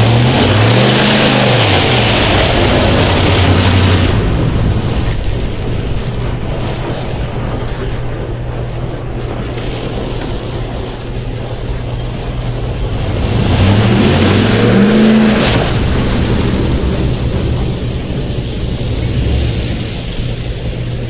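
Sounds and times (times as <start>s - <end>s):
pickup truck engine revving: 0.0s - 7.5s, 12.7s - 21.0s.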